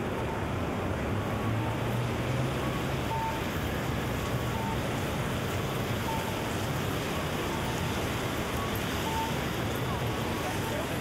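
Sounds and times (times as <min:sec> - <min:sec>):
traffic rumble: 0:00.0 - 0:11.0
faint short beeps: 0:08.6 - 0:11.0.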